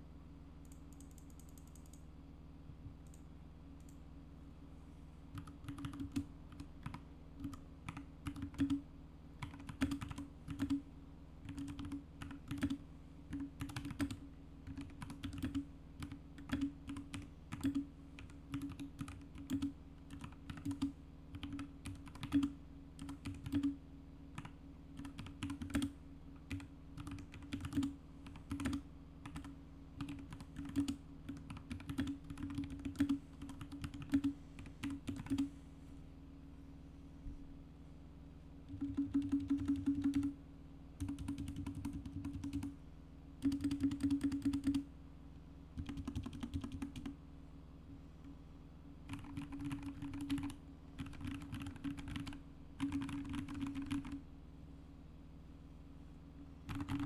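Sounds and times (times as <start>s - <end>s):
low steady hum: 0.0s - 57.0s
mechanical keyboard typing: 5.3s - 8.8s, 9.4s - 10.8s, 11.4s - 23.8s, 24.4s - 35.5s, 38.7s - 40.4s, 41.0s - 42.7s, 43.4s - 44.9s, 45.8s - 47.1s, 49.1s - 54.2s, 56.7s - 57.0s.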